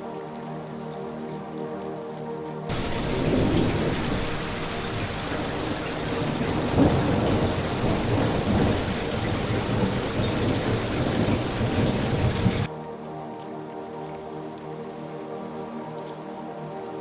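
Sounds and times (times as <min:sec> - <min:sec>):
heavy rain: 0:00.0 - 0:17.0
thunder clap: 0:02.7 - 0:12.7
thunder rumbling: 0:02.7 - 0:12.7.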